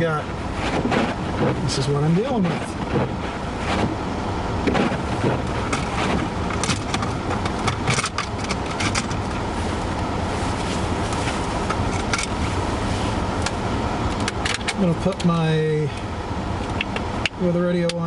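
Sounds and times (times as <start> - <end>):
blizzard wind: 0.0 - 15.0
car engine rumble: 0.0 - 18.0.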